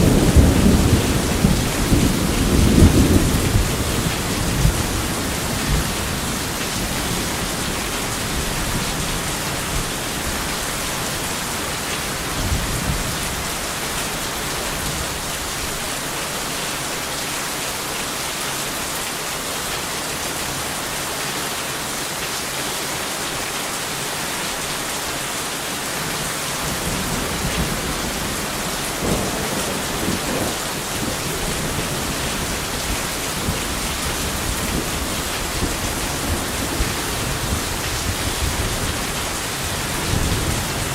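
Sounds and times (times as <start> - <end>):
thunder rumbling: 0.0 - 10.4, 26.6 - 40.9
heavy rain: 0.0 - 40.9.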